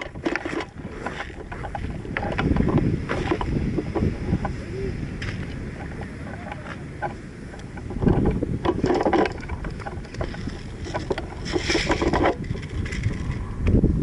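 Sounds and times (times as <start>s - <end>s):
rustling with small clicks: 0.0s - 4.6s, 5.2s - 13.8s
wind rumbling on microphone: 0.0s - 14.0s.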